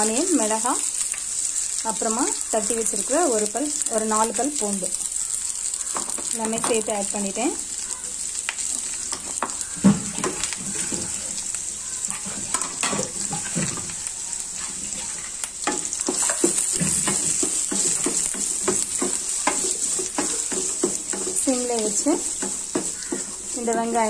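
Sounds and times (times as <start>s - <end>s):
food sizzling in hot oil: 0.0s - 24.0s
stirring scrapes and taps on pan: 12.0s - 24.0s.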